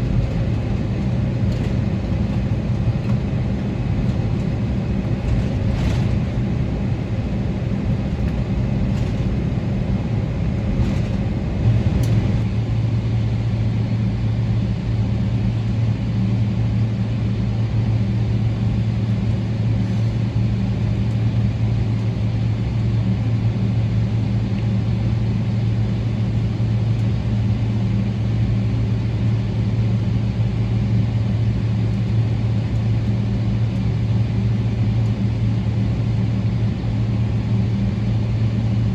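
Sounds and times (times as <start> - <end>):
rushing background noise: 0.0 - 12.4
airplane cabin engine hum: 0.0 - 38.9.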